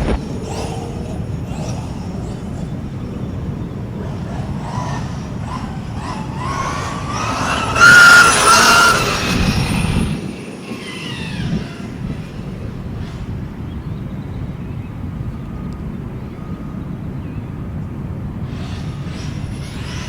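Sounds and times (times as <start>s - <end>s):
toy truck motor whine: 0.0s - 13.0s
tyres rushing on ground: 0.0s - 13.2s.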